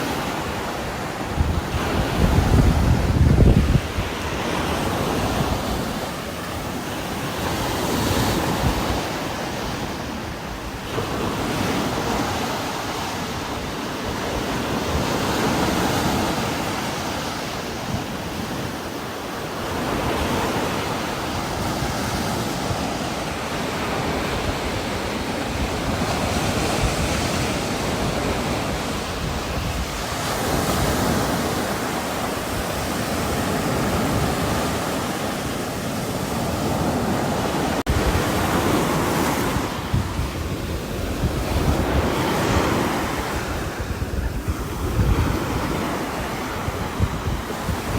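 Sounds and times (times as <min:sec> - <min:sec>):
wind gusting through trees: 0:00.0 - 0:47.9.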